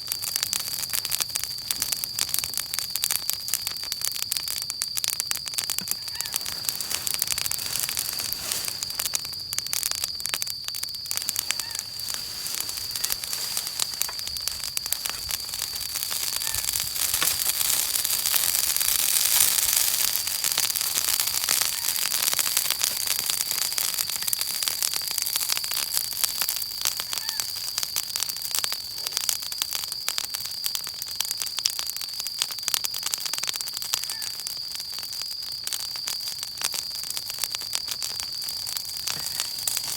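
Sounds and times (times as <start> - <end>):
bonfire crackling and popping: 0.0 - 39.9
hiss: 5.9 - 9.0.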